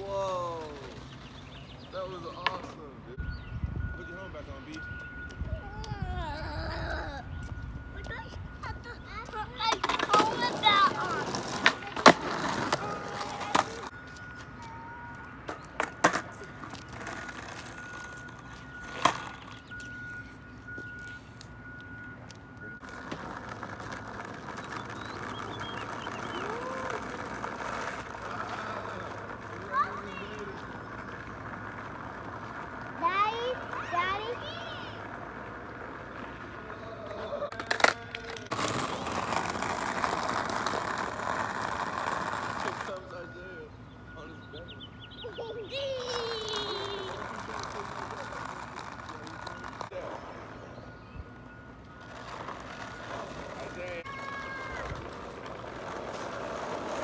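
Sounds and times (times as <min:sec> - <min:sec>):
skateboard wheels rolling on asphalt: 0:00.0 - 0:57.0
faint high beeping: 0:01.9 - 0:15.5, 0:16.4 - 0:23.1, 0:41.8 - 0:54.6
skateboard clacks: 0:02.1 - 0:02.8, 0:08.0 - 0:19.9, 0:22.8 - 0:43.2, 0:45.9 - 0:50.6, 0:52.0 - 0:57.0
skateboard knocks on asphalt: 0:15.4 - 0:18.2, 0:22.9 - 0:32.9, 0:37.5 - 0:42.9.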